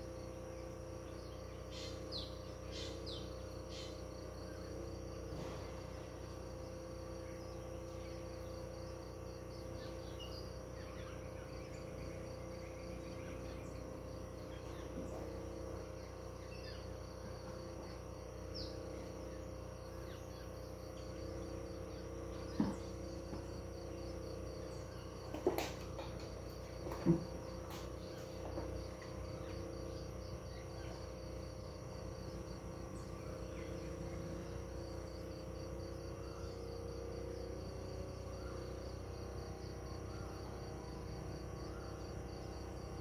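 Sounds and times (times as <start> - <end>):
crickets trilling: 0.0 - 43.0
low steady hum: 0.0 - 43.0
bird chirps: 1.2 - 4.7.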